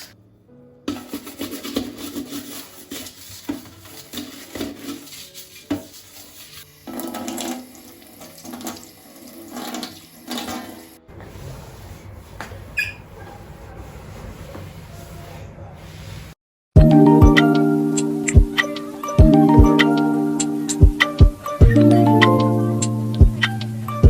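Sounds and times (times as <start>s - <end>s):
tap water splashing in sink: 6.9s - 10.9s.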